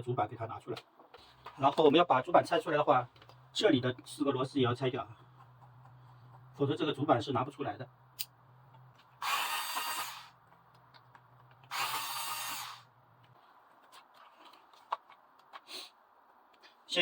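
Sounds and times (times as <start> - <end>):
electric screwdriver running: 9.2 - 10.4, 11.7 - 12.9.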